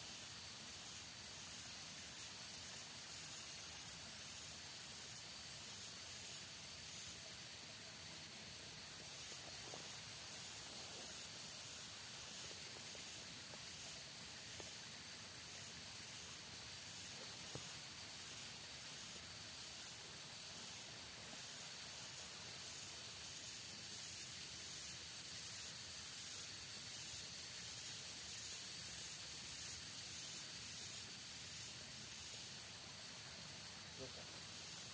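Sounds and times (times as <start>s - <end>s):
faint steady hiss: 0.0s - 34.9s
insects trilling: 0.0s - 34.9s.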